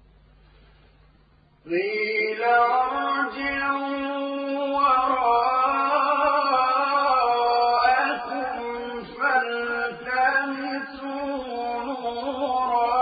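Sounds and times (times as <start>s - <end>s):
man chanting melodically: 1.7s - 13.0s.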